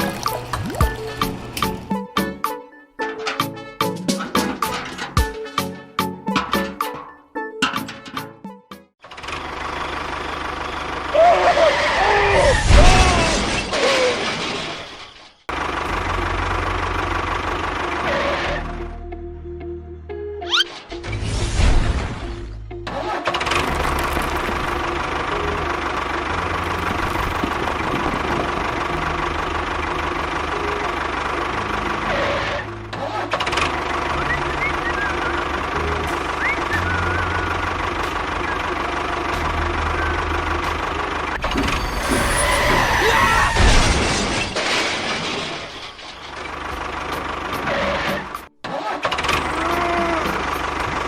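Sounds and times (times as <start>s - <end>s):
small engine chugging: 23.6s - 42.5s.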